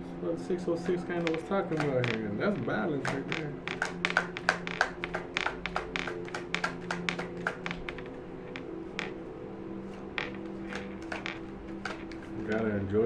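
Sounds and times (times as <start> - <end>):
sustained background music: 0.0 - 13.0
cards shuffling clicks and taps: 0.8 - 9.2, 9.9 - 12.8.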